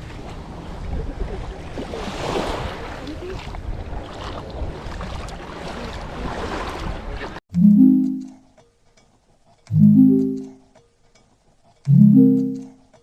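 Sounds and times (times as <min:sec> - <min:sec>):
water sloshing around a boat: 0:00.0 - 0:07.4
wind rumbling on microphone: 0:00.0 - 0:07.4.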